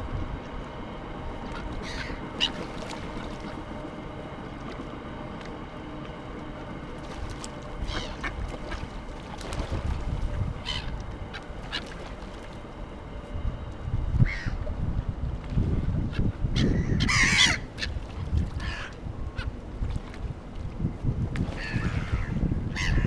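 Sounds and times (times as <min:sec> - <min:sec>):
waterbirds squawking: 0:01.2 - 0:13.1, 0:14.2 - 0:14.8, 0:16.0 - 0:19.7, 0:21.4 - 0:23.0
wind on microphone: 0:09.4 - 0:11.3, 0:13.3 - 0:23.0.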